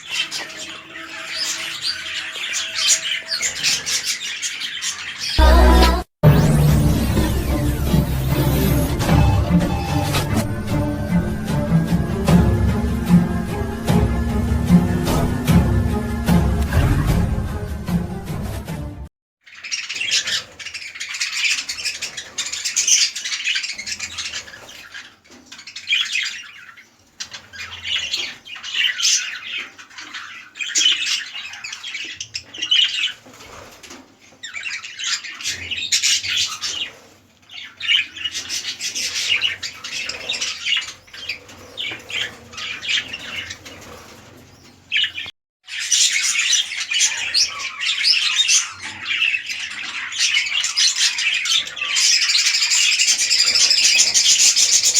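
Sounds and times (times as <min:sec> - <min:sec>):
budgerigars chattering: 0:00.0 - 0:05.4, 0:34.4 - 0:44.0, 0:44.9 - 0:54.9.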